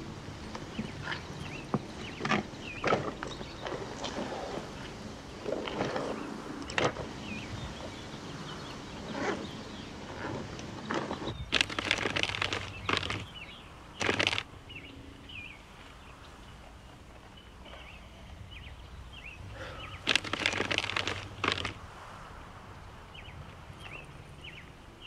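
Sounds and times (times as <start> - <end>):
small birds chirping: 0.0 - 25.0
loud bursts of noise: 11.4 - 14.6, 19.6 - 21.8.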